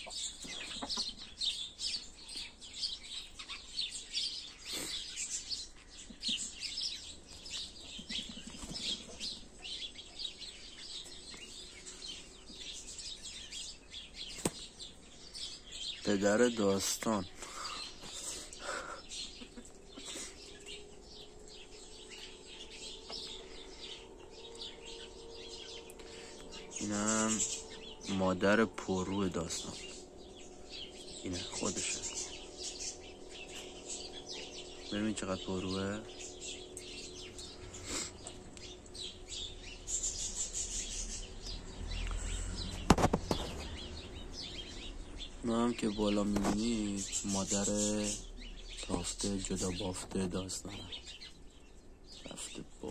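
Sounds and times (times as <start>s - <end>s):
small birds chirping: 0.0s - 52.9s
faint steady hum: 17.3s - 42.8s.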